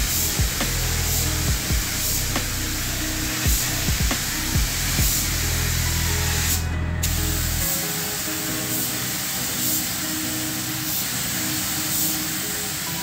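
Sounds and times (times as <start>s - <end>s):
low hum: 0.0s - 7.7s
background music: 0.0s - 13.0s
paint spray gun hissing: 0.0s - 13.0s.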